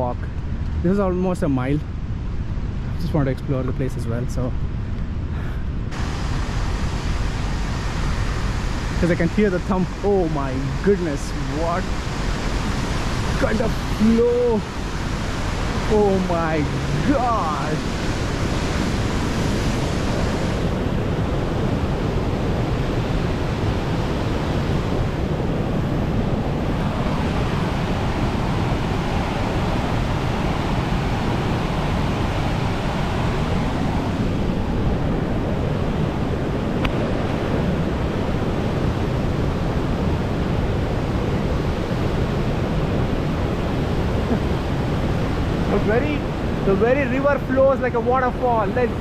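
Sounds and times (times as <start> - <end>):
river rapids rushing: 6.0 - 20.8, 26.5 - 35.8.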